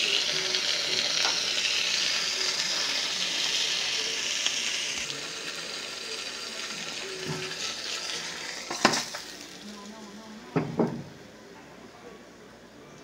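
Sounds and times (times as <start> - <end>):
meat sizzling in a frying pan: 0.0 - 10.2.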